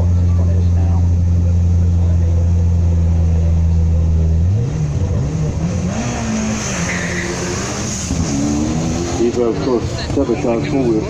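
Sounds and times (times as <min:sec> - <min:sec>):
rally car engine revving: 0:00.0 - 0:11.0
car accelerating through gear changes: 0:04.3 - 0:10.8.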